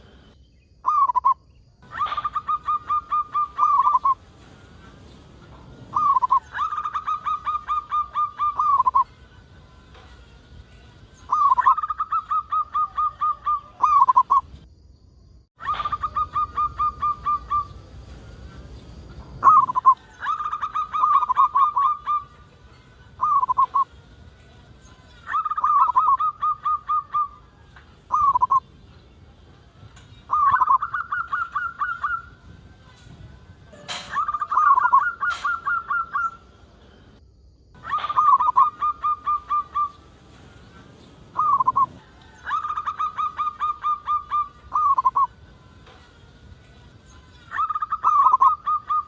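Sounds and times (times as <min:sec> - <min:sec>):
dove cooing: 0:01.9 - 0:04.2, 0:05.9 - 0:09.1, 0:11.3 - 0:14.5, 0:15.6 - 0:17.8, 0:19.4 - 0:22.4, 0:25.2 - 0:27.4, 0:28.1 - 0:28.6, 0:30.3 - 0:32.4, 0:33.8 - 0:36.4, 0:37.8 - 0:40.0, 0:41.3 - 0:45.4, 0:47.5 - 0:49.0.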